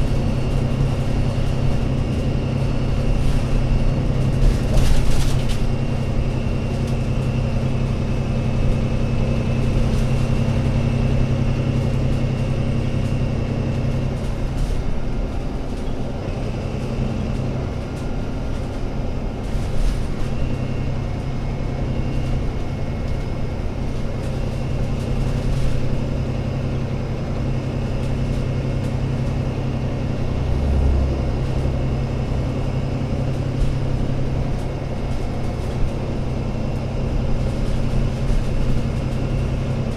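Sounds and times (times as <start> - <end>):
bus engine low drone: 0.0 - 39.9.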